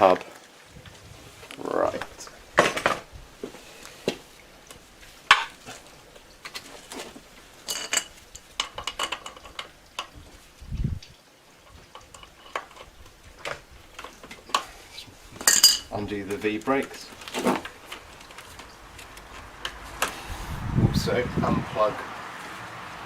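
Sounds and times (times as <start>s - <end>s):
metal tools clinking: 4.6s - 10.2s, 11.6s - 14.7s, 15.3s - 20.2s
metallic ring: 15.4s - 15.9s.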